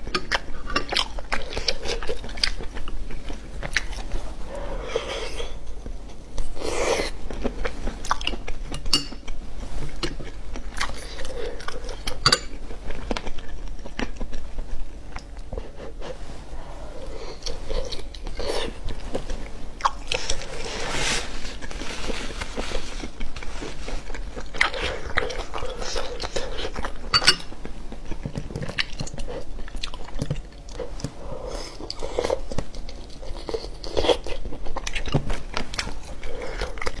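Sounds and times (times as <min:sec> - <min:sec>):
biting and chewing: 0:00.0 - 0:16.2, 0:17.0 - 0:37.0.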